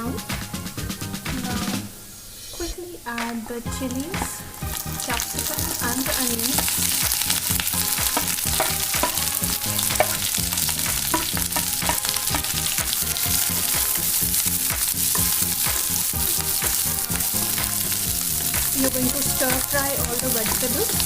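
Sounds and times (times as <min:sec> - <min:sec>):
vegetables sizzling in hot oil: 0:03.7 - 0:21.0
spatula clicking against pan: 0:08.0 - 0:10.3.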